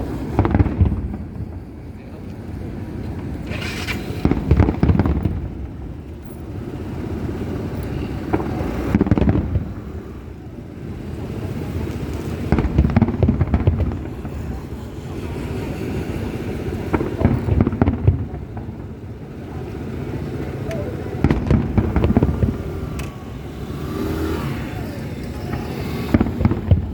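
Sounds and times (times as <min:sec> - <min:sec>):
steady low rumble: 0:17.2 - 0:23.6
fireworks shell bursts and crackle: 0:20.7 - 0:23.2.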